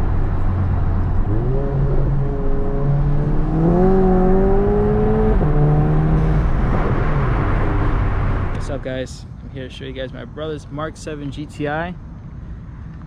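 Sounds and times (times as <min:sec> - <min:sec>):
car engine revving through exhaust: 0:00.0 - 0:08.6.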